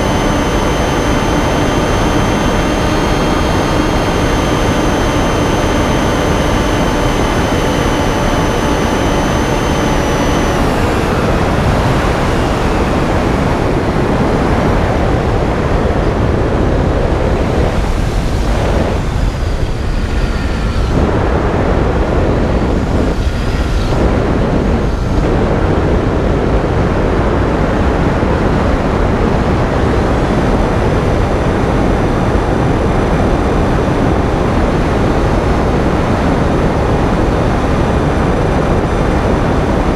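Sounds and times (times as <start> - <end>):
electric motor and propeller whining: 0.0 - 39.9
wind rush: 0.0 - 39.9.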